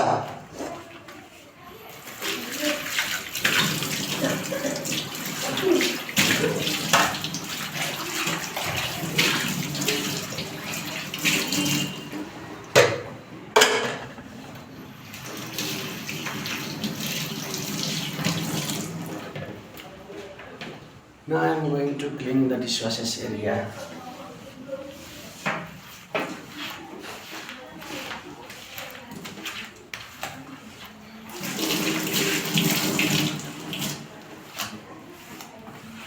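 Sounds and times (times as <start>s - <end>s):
tap water running into sink: 2.0s - 13.1s, 14.9s - 19.6s, 31.3s - 34.2s
dishes and pots clattering: 2.8s - 14.3s.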